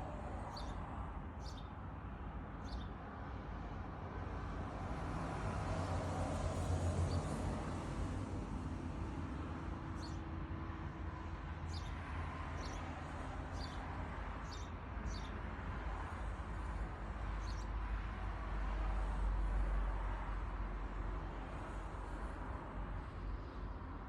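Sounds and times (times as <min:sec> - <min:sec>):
bird chirping: 0:01.4 - 0:01.7, 0:10.0 - 0:10.2, 0:11.7 - 0:12.0.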